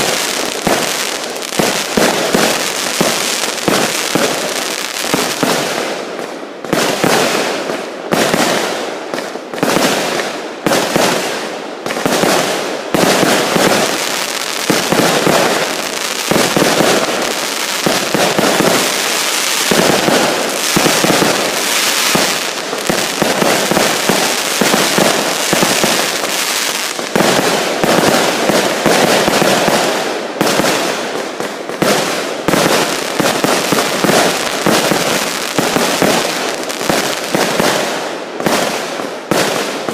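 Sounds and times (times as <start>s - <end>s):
fireworks banging and crackling: 0.0s - 39.9s.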